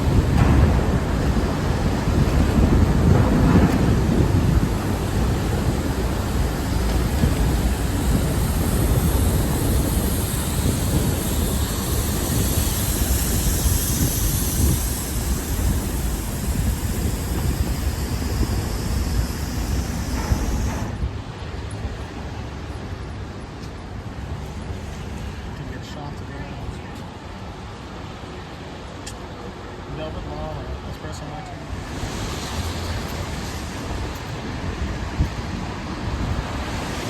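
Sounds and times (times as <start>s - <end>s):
hiss: 0.0s - 21.1s, 31.7s - 37.0s
loud steady rumbling: 0.0s - 22.6s, 29.9s - 37.0s.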